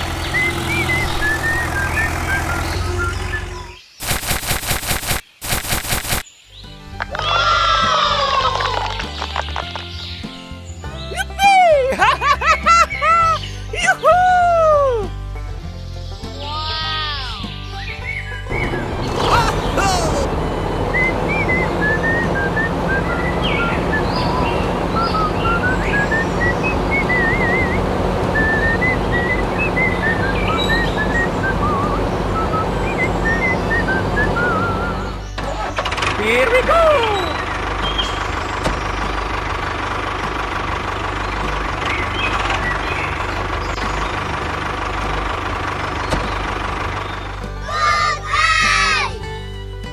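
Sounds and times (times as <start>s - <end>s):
engine running with rapid chatter: 0.0s - 6.2s, 18.5s - 49.9s.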